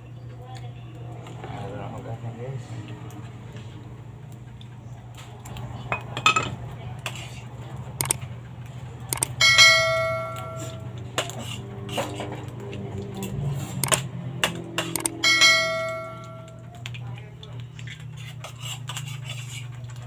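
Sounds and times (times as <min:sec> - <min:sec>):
low steady hum: 0:02.8 - 0:11.6, 0:13.8 - 0:18.4
metal object ringing: 0:09.2 - 0:10.9, 0:15.0 - 0:16.7.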